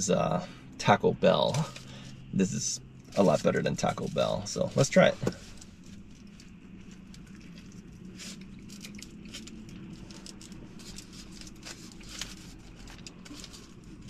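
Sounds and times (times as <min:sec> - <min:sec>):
steady low hum: 0:00.0 - 0:14.0
small clicks and crinkles: 0:01.4 - 0:02.2, 0:02.9 - 0:14.0
wet chewing sounds: 0:05.6 - 0:14.0.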